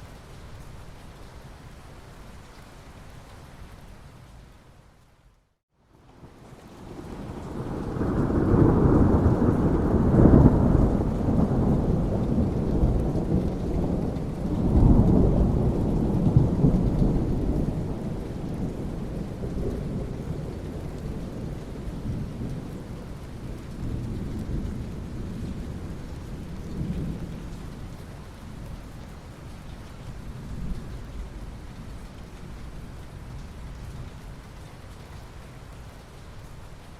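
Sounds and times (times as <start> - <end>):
steady rain hiss: 0.0 - 36.9
rolling thunder: 6.8 - 28.0.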